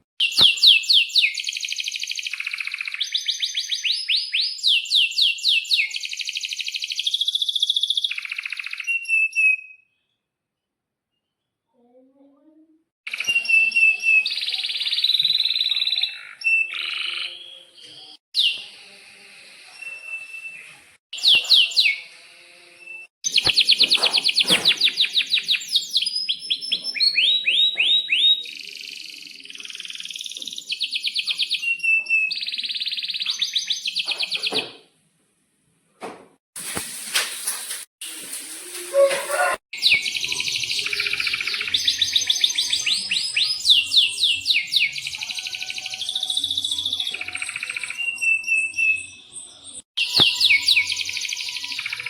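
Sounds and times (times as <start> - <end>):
canary singing trills: 21.2 - 22.1, 38.9 - 52.0.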